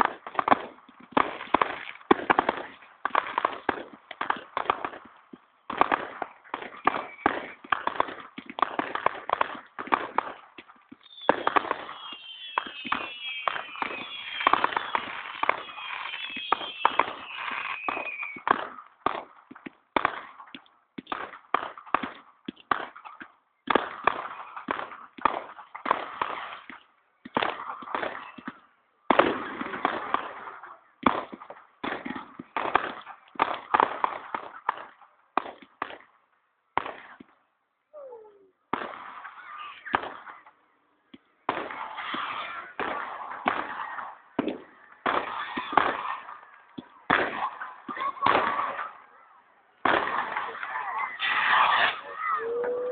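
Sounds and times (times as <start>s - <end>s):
fireworks bangs and crackles: 0.0s - 52.9s
firework whistles falling in pitch: 6.8s - 7.6s, 11.0s - 18.5s.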